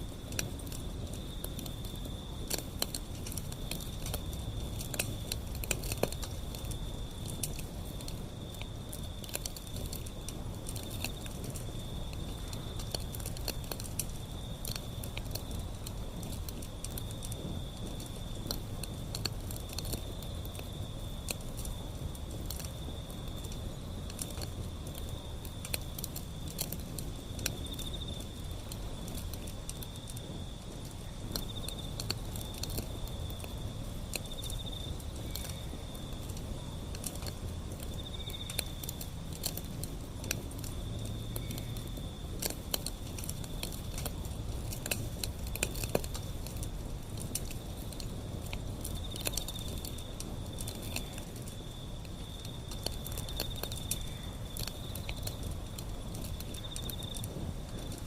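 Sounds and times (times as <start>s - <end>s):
fire crackling and popping: 0.0s - 58.0s
low rumble of flames: 0.0s - 58.0s
insect trilling: 22.6s - 39.2s, 48.7s - 58.0s.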